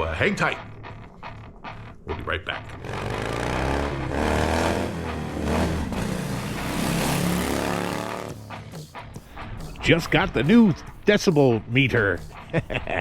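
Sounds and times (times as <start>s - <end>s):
motorcycle engine revving: 2.6s - 13.0s.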